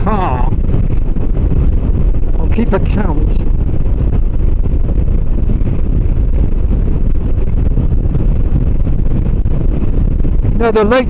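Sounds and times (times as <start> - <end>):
road noise: 0.0 - 11.0
wind noise on microphone: 0.0 - 11.0.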